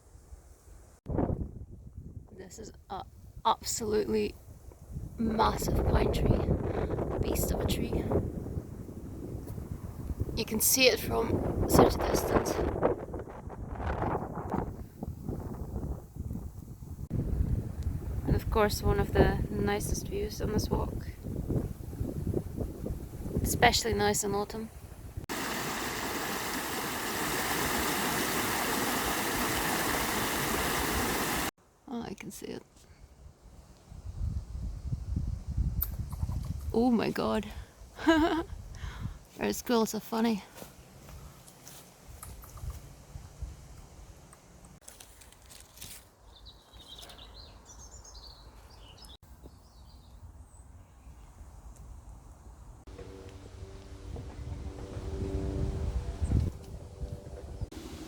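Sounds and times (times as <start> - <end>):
rushing water: 25.3 - 31.5
songbird chirping: 46.2 - 53.9
low outdoor rumble: 52.9 - 58.0.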